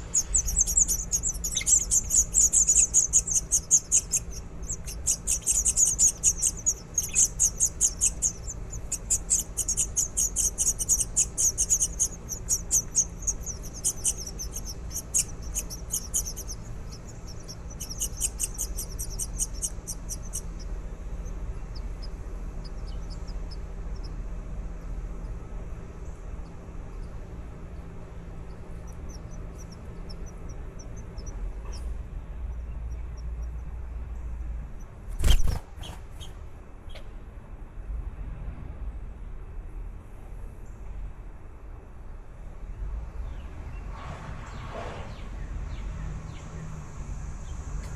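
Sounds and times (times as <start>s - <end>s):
baby birds chirping: 0.0s - 32.0s, 35.1s - 37.0s.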